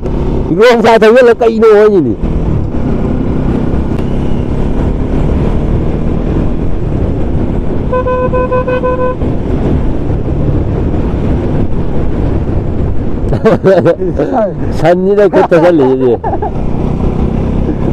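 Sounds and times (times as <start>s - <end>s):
motorcycle engine and wind: 0.0s - 17.9s
vehicle horn short beeps: 7.9s - 9.2s.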